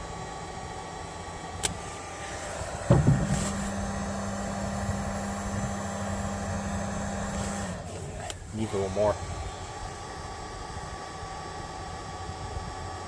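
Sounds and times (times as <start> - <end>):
low motor hum: 0.0 - 13.0
sharp click: 1.6 - 1.8
heat gun hissing: 1.6 - 10.5.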